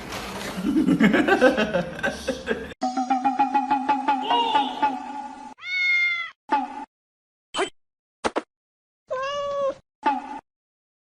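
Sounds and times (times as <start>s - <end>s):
cat meowing: 5.6s - 6.4s, 9.1s - 9.8s.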